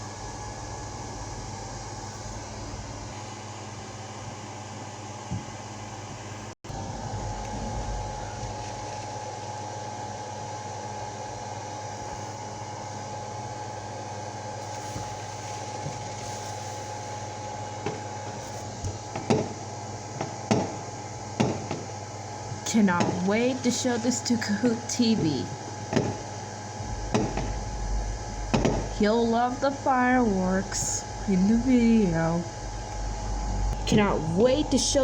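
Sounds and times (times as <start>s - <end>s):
machine hum and hiss: 0.0s - 35.0s
short thumps: 26.8s - 34.2s.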